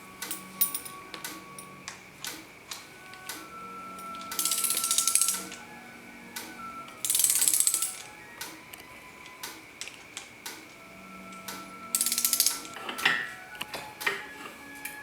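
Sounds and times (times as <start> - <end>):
background music: 0.0 - 15.0
ratchet wrench clicking: 4.3 - 5.6, 7.0 - 8.1, 12.0 - 12.7.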